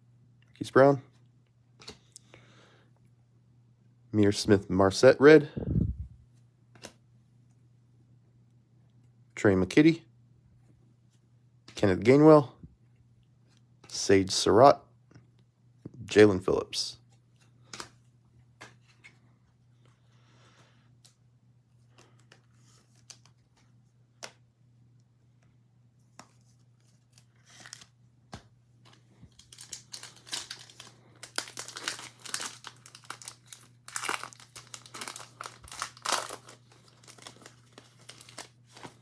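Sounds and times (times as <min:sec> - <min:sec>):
plastic wrapper tearing and crinkling: 0:27.0 - 0:27.9, 0:29.3 - 0:39.0.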